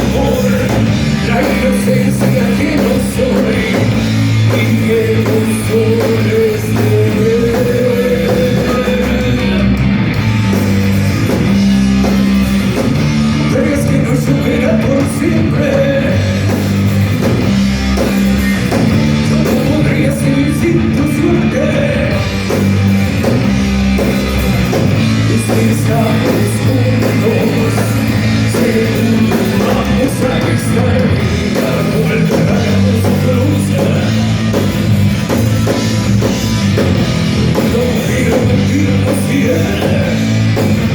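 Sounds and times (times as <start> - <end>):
person singing: 0.0 - 9.9, 13.2 - 16.6, 19.2 - 22.4, 24.0 - 34.7, 37.5 - 40.6
bass guitar: 0.0 - 40.9
distorted electric guitars: 0.0 - 40.9
drums: 0.0 - 40.9.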